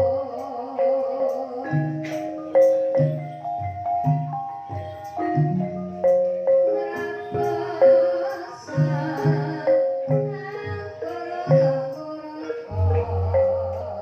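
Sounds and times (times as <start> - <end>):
gamelan ensemble playing: 0.0 - 14.0.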